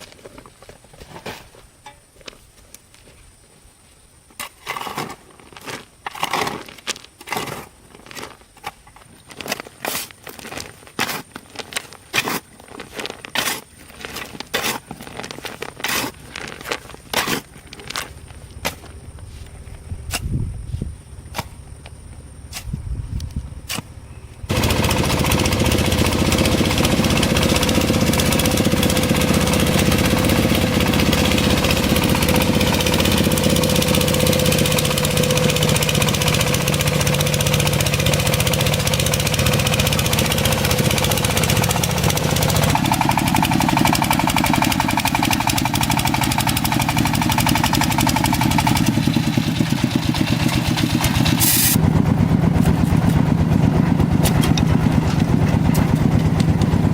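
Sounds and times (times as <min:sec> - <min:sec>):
motor-driven machine running: 0:24.5 - 0:56.9.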